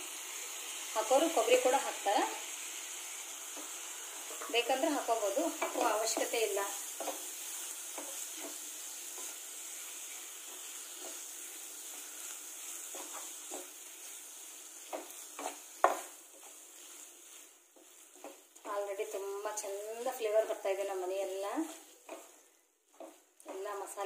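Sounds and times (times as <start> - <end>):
food sizzling in oil: 0.0 - 24.0
spatula stirring and scraping: 2.5 - 24.0.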